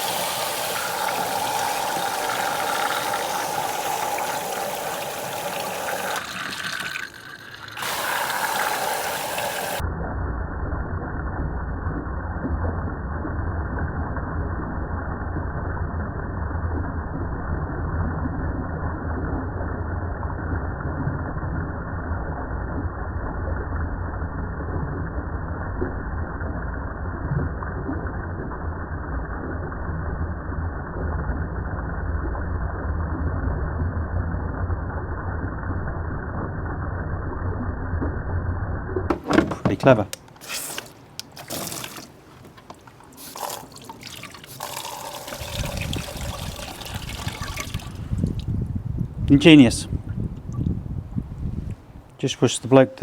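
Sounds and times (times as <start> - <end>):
water spray rushing: 0.0 - 9.8, 39.8 - 42.3, 42.9 - 48.2.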